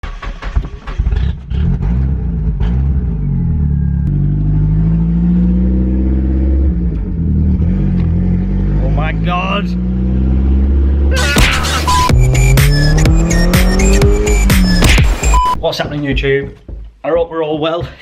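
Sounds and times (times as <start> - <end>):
sharp engine cracks: 0.0 - 1.6
car engine under load: 0.0 - 15.6.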